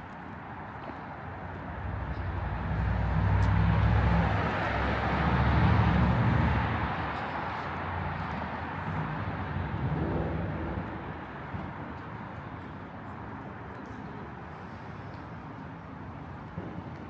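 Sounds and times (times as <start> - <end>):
vehicle passing by: 1.8 - 7.2.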